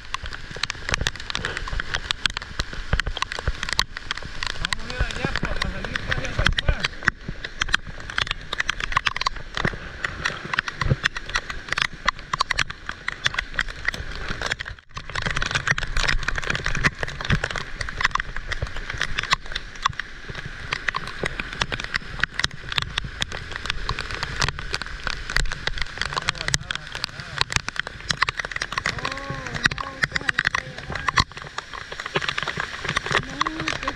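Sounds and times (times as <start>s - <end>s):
heavy rain: 0.0s - 33.9s.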